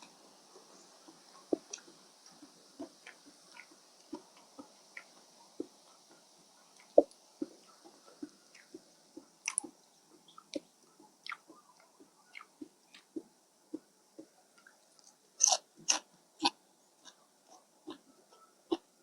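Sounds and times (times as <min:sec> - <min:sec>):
person chewing food: 0:06.8 - 0:09.8, 0:15.0 - 0:17.2
mouth clicks: 0:09.4 - 0:14.7, 0:15.4 - 0:17.2.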